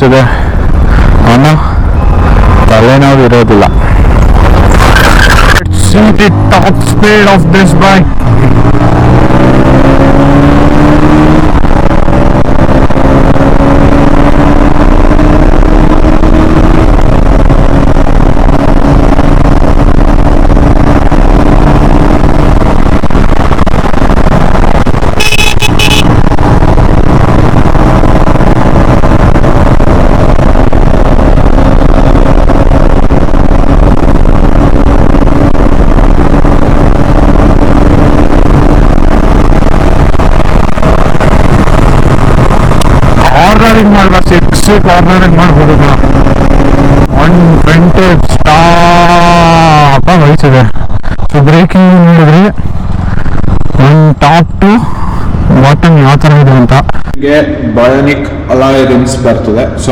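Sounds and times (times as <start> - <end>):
motorcycle engine at high revs: 0.0 - 57.2
heavy wind noise: 0.0 - 59.9
horn toot: 25.1 - 26.2.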